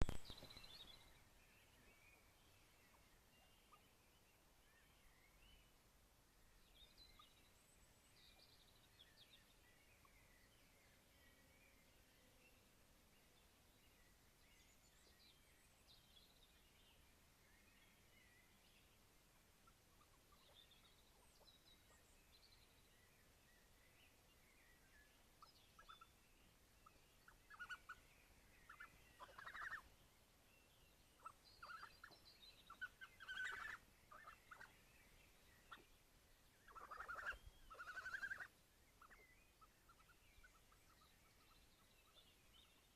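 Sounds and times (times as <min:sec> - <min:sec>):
faint birdsong: 0:00.0 - 0:42.9
young animals chattering calls: 0:28.7 - 0:29.8, 0:32.8 - 0:34.7, 0:36.7 - 0:38.5.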